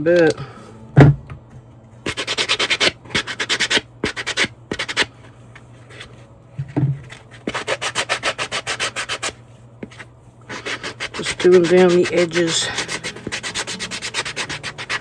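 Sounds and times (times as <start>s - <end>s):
hand sanding scraping strokes: 7.5s - 9.4s, 10.5s - 15.0s.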